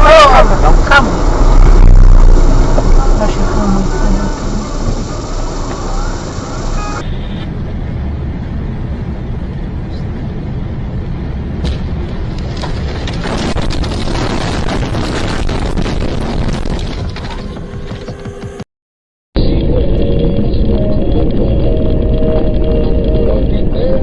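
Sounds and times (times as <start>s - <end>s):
dense crackling and knocking: 0.0s - 5.9s, 11.6s - 18.6s
road and engine rumble: 0.0s - 18.6s, 19.4s - 24.0s.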